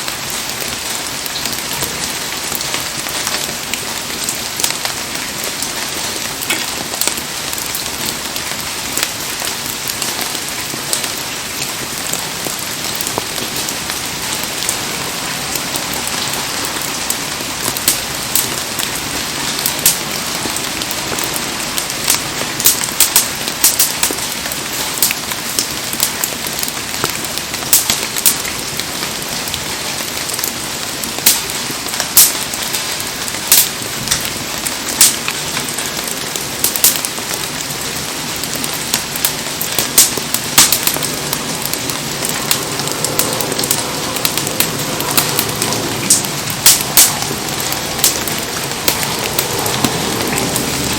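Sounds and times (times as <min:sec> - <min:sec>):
heavy rain hissing: 0:00.0 - 0:50.9
sharp pops and taps: 0:19.7 - 0:24.4, 0:31.2 - 0:32.4, 0:39.2 - 0:47.3, 0:48.0 - 0:48.3.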